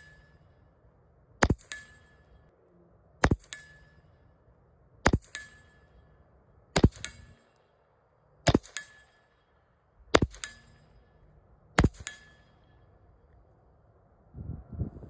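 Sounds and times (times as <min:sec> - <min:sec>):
steel target ringing clang: 0:00.0 - 0:00.7, 0:01.4 - 0:02.5, 0:03.2 - 0:04.4, 0:05.0 - 0:06.2, 0:08.5 - 0:11.2, 0:11.8 - 0:13.0
handgun shots: 0:01.4 - 0:01.9, 0:03.2 - 0:03.8, 0:06.8 - 0:07.3, 0:08.5 - 0:09.0, 0:10.2 - 0:10.6.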